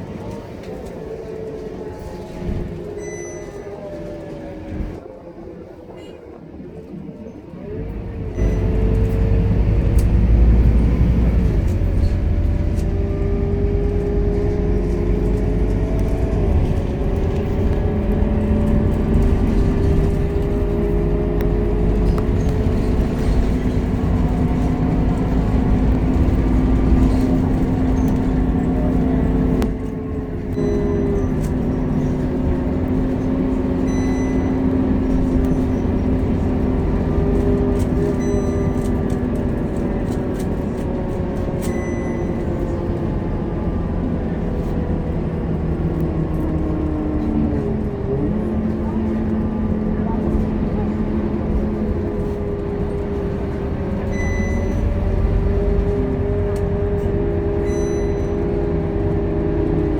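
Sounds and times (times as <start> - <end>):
bus engine droning: 0.0 - 59.9.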